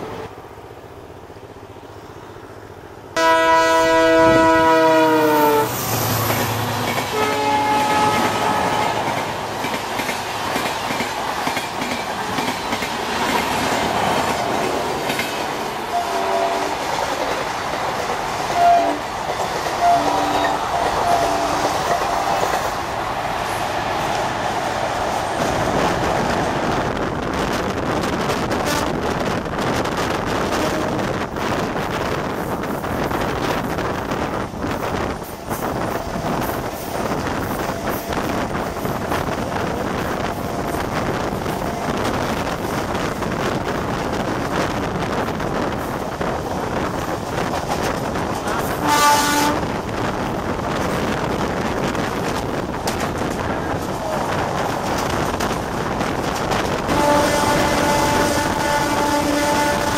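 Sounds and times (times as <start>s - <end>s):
electric trains rumbling: 0.0s - 59.9s
train horn: 3.2s - 5.8s, 6.5s - 9.2s, 15.9s - 16.8s, 18.5s - 19.1s, 19.8s - 22.4s, 28.6s - 29.1s, 30.5s - 31.1s, 48.5s - 49.8s, 56.9s - 59.9s
wind rushing: 20.6s - 59.9s.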